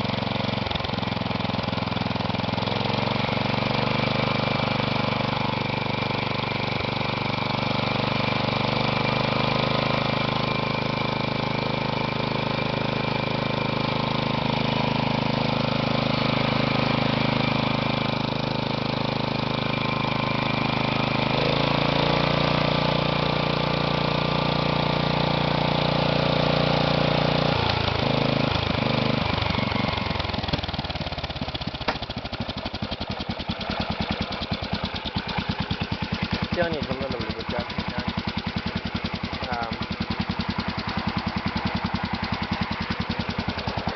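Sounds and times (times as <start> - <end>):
single-cylinder engine running: 0.0 - 43.9.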